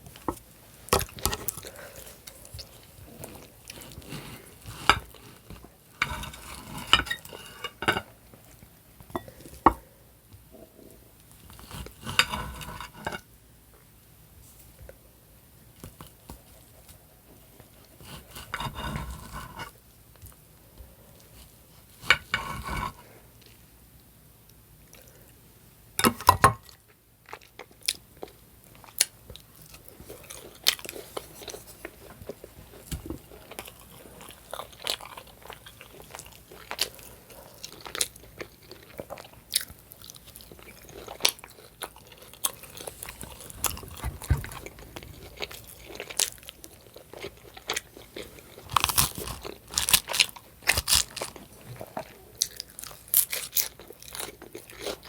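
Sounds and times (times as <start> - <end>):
chewing and biting food: 27.2 - 55.0.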